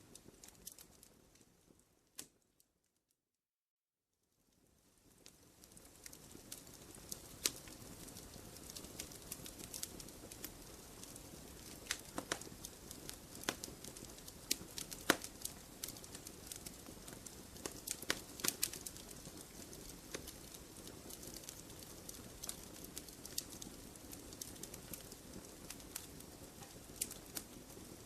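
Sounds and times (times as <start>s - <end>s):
wood crackling and popping: 0.0s - 2.4s, 4.8s - 28.0s.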